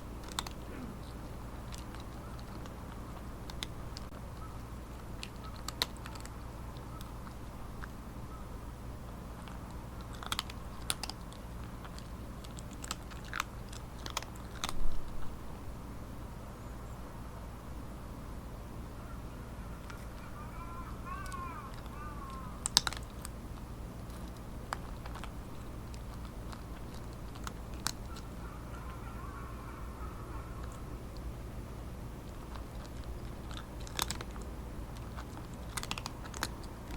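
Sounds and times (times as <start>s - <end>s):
cat crunching dry kibble: 0.0s - 8.2s, 9.1s - 15.6s, 19.8s - 29.6s, 30.2s - 36.9s
low hum: 0.0s - 36.9s.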